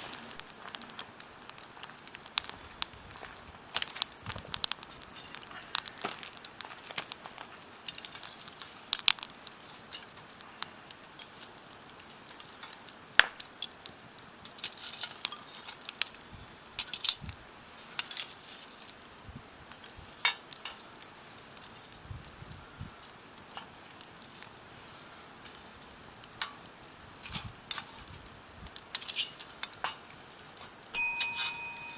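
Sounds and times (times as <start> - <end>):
wood fire crackling: 0.0 - 31.9.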